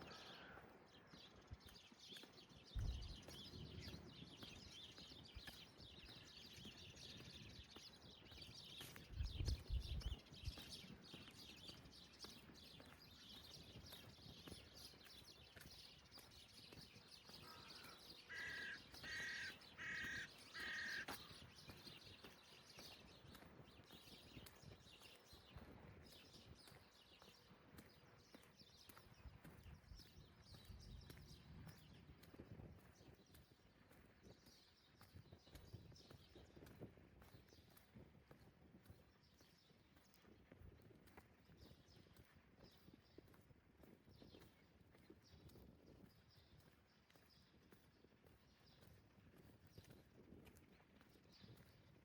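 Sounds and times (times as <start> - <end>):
faint footsteps: 0.0 - 52.0
crow cawing: 0.1 - 0.6, 17.4 - 21.2.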